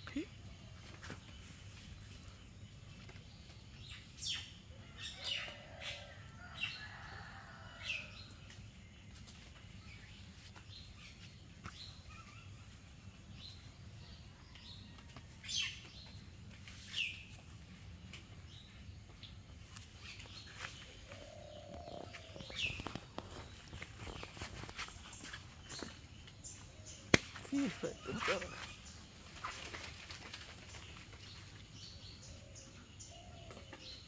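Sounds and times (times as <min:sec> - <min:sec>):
birds chirping: 0:18.6 - 0:34.0.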